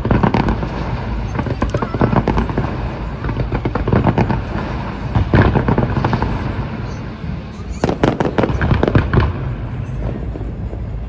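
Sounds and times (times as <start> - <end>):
continuous rumble: 0.0 - 11.0
fireworks bangs and crackles: 7.8 - 11.0.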